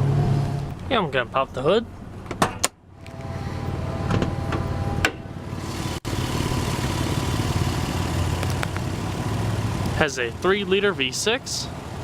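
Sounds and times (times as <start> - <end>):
car engine idling: 5.4 - 12.0.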